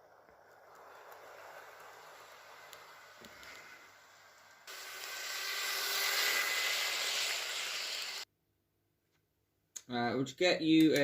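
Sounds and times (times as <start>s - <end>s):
model train running on track: 0.0s - 8.2s.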